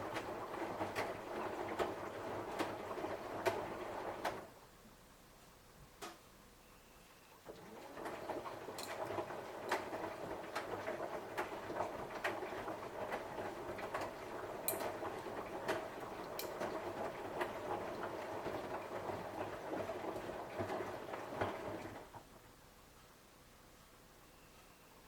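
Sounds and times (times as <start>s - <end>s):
washing machine drum churning: 0.0s - 4.5s, 7.4s - 22.4s.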